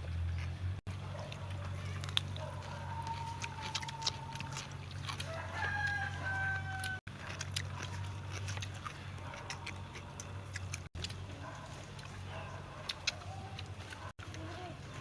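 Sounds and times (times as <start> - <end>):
rooster crowing: 5.2 - 7.1.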